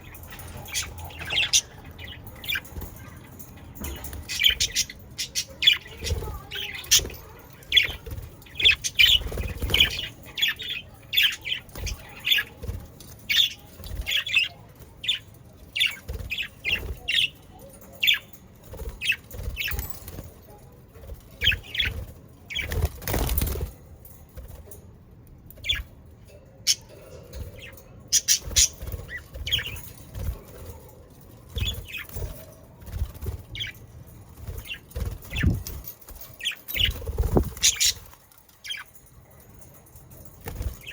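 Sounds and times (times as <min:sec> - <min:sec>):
wing flutters: 0:27.6 - 0:39.1.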